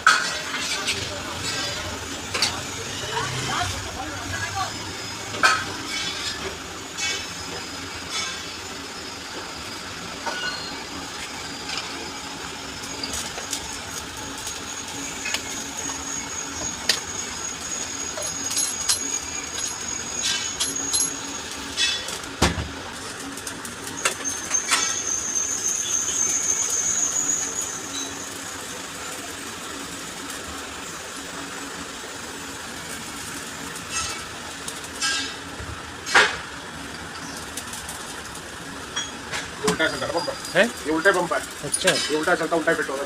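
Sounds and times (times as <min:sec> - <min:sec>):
metal tools clicking and tapping: 0:18.2 - 0:22.2, 0:39.0 - 0:42.4.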